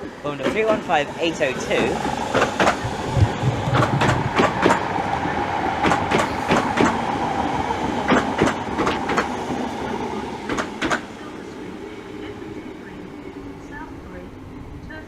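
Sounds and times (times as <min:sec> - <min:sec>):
train wheels clicking over joints: 0:00.0 - 0:07.2, 0:07.8 - 0:09.6, 0:10.4 - 0:11.1
electric train whine: 0:00.0 - 0:15.0.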